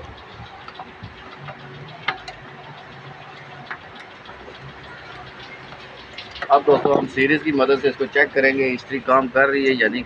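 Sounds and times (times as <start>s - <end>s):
sharp metal clicks and taps: 0.0s - 7.0s.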